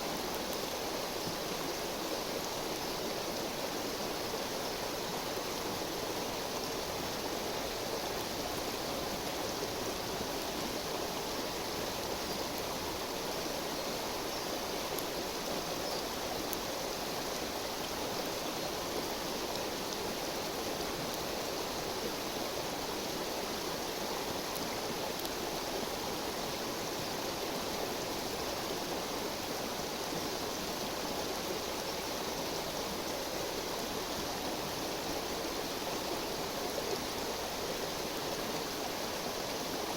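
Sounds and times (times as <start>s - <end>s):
river flowing: 0.0s - 39.9s
wood fire crackles: 24.5s - 25.4s.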